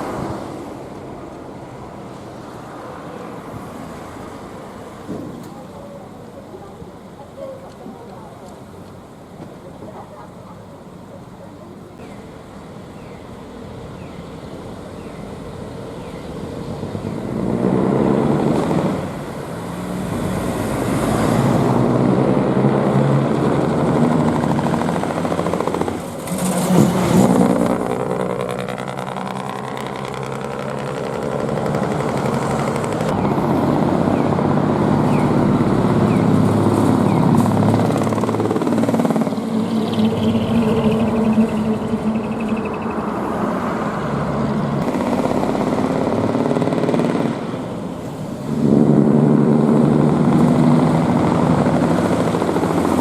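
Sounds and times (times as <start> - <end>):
diesel truck driving by: 11.7 - 53.0.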